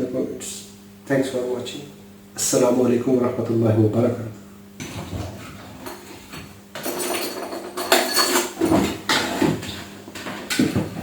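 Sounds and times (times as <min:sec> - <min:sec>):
faint steady hum: 0:00.0 - 0:11.0
hard objects knocking and clattering: 0:04.8 - 0:11.0.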